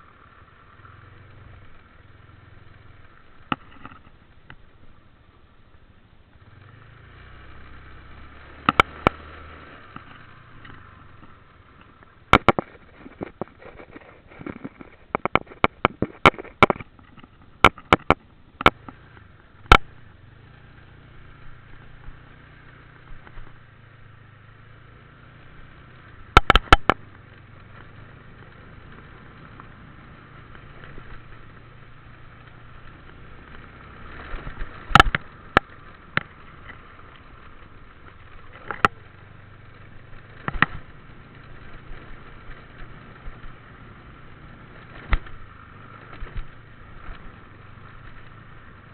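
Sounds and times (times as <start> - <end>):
motorbike running: 0.0 - 48.9
sharp knocks and clicks: 3.4 - 4.6, 8.6 - 9.2, 10.0 - 19.0, 26.3 - 27.1, 34.3 - 36.8, 40.3 - 40.9.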